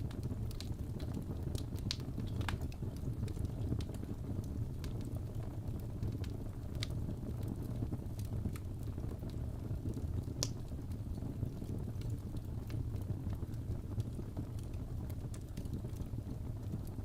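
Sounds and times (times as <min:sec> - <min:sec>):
fire crackling and popping: 0:00.0 - 0:17.0
low fire rumble: 0:00.0 - 0:17.0.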